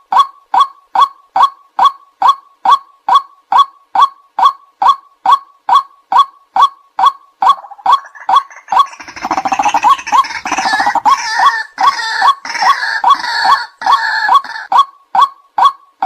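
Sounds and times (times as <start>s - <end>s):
waterhen calls: 7.0s - 15.7s
harsh croaking chorus: 7.5s - 14.7s.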